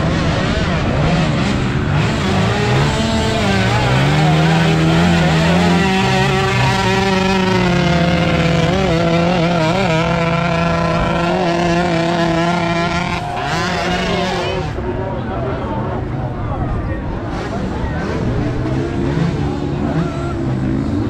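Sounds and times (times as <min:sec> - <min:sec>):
dirt bike engine running: 0:00.4 - 0:14.8.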